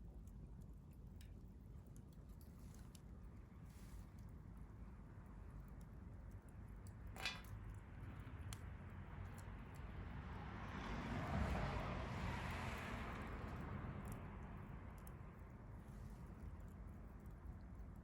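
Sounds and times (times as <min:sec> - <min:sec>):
wood fire crackling: 0:00.2 - 0:09.9.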